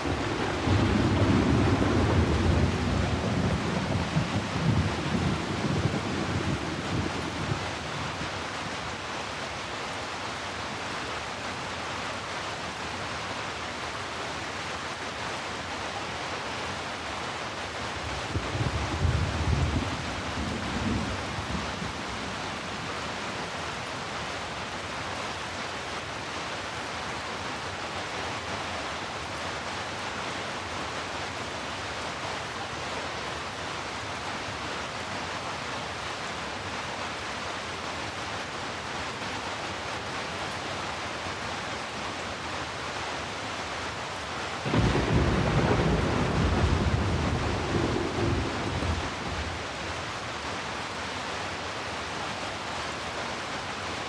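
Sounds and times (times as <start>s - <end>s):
thunder rumbling: 0.0s - 7.7s, 18.0s - 22.5s, 44.6s - 50.0s
heavy rain hissing: 0.0s - 13.1s, 15.5s - 54.0s.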